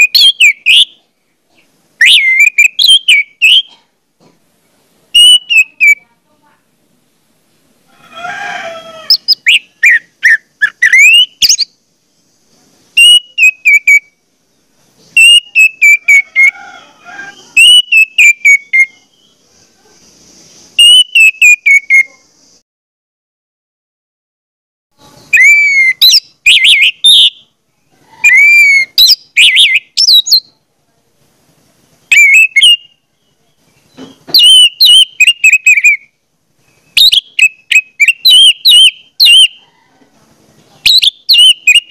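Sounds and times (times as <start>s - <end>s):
bird whistled chirps: 0.0s - 1.0s, 2.0s - 3.7s, 5.2s - 6.0s, 9.1s - 11.8s, 13.0s - 14.1s, 15.1s - 16.5s, 17.3s - 19.1s, 20.8s - 22.2s, 25.3s - 27.4s, 28.2s - 30.5s, 32.1s - 33.0s, 34.2s - 36.1s, 36.7s - 39.6s, 40.9s - 41.9s.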